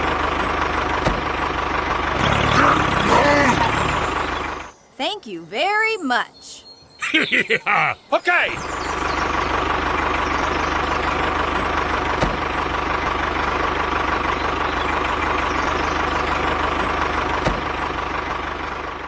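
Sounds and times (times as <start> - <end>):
motor running with low throb: 0.0 - 4.8, 8.6 - 19.0.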